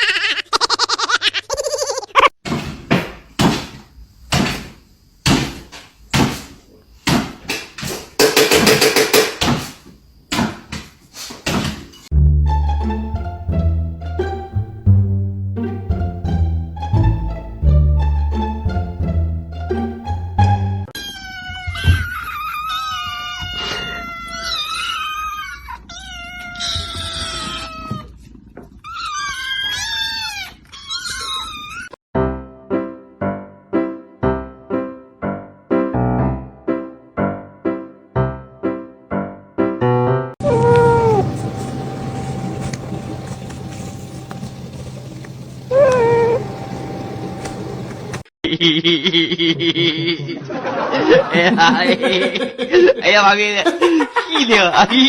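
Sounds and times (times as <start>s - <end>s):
sharp thumps against something hard: 2.5s - 9.7s
cat yowling: 21.0s - 28.1s, 28.8s - 32.0s, 40.4s - 48.2s.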